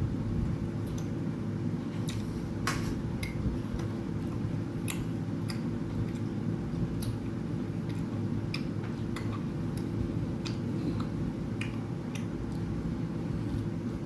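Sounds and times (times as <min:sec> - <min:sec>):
steady low hum: 0:00.0 - 0:14.0
person chewing food: 0:01.9 - 0:13.8.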